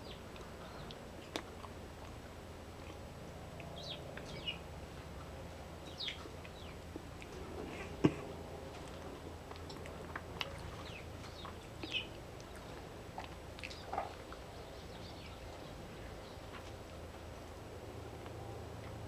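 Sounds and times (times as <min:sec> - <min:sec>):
birds chirping: 0:00.0 - 0:01.4, 0:02.8 - 0:04.7, 0:05.7 - 0:06.9, 0:10.4 - 0:12.9, 0:13.6 - 0:17.1
steady low hum: 0:00.0 - 0:19.0.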